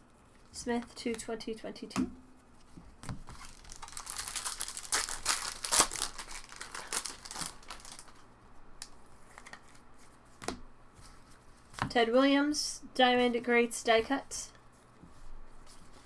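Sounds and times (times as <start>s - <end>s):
foil wrapper crinkling and tearing: 3.3s - 8.2s.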